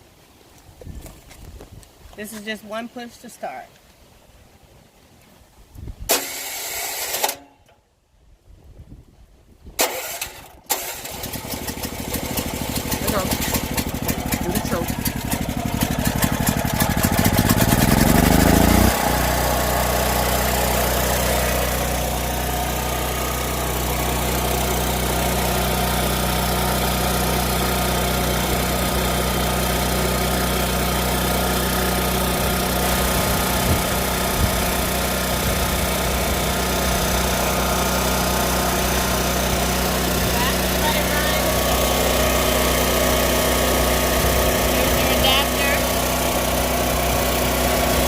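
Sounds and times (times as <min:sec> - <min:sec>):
portable generator engine running: 0:09.8 - 0:48.0.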